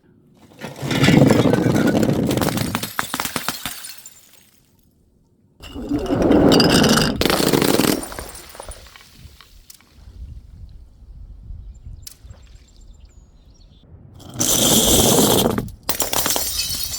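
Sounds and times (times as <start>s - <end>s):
glass shattering crash: 1.2s - 4.6s, 5.6s - 9.5s, 15.9s - 16.9s
glass shards clinking: 5.6s - 9.4s, 15.2s - 16.9s.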